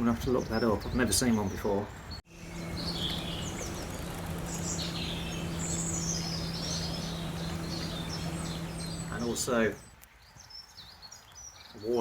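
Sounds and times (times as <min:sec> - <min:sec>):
small birds chirping: 0:00.0 - 0:12.0
steady low hum: 0:02.3 - 0:09.9.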